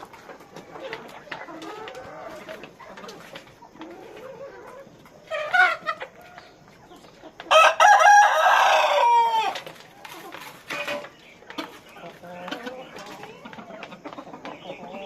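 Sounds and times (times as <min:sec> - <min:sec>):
chickens clucking: 0:00.0 - 0:15.0
rooster crowing: 0:07.5 - 0:09.6.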